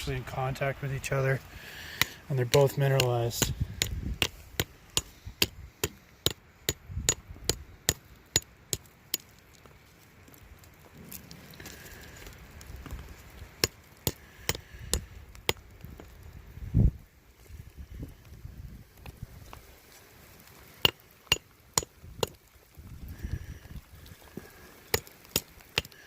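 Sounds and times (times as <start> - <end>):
hammer striking rock: 1.9 - 9.2, 13.6 - 15.6, 20.8 - 22.4, 24.9 - 26.0.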